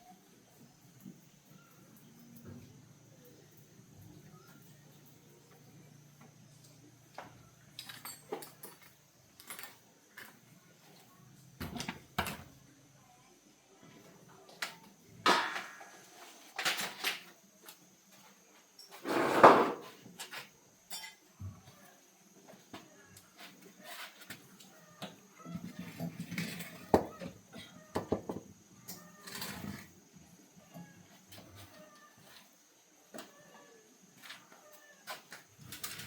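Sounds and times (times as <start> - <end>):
tools and parts clattering: 7.7 - 10.4, 15.3 - 17.3, 18.8 - 21.2, 35.2 - 36.0.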